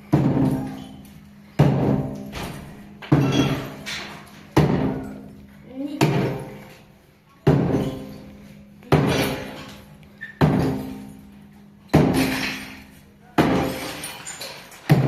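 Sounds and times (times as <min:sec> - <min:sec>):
heavy ringing strikes: 0:00.2 - 0:05.4.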